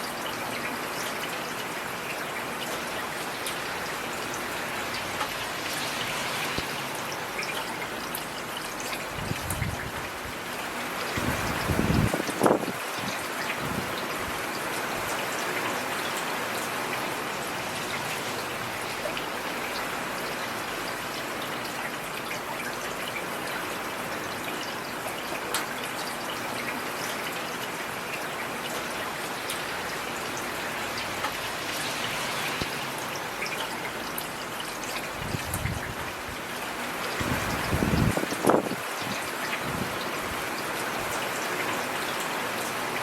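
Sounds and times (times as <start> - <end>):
heavy rain hissing: 29.4 - 34.2.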